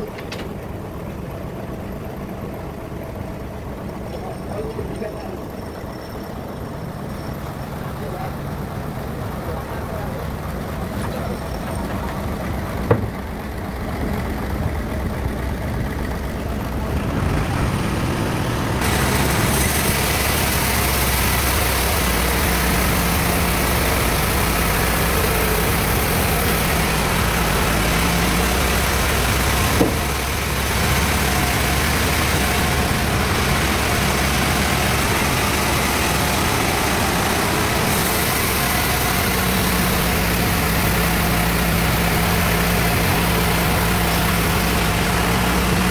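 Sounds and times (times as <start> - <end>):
bandsaw machine drone: 5.8 - 45.9
sharp knocks: 12.8 - 13.3, 29.7 - 30.2.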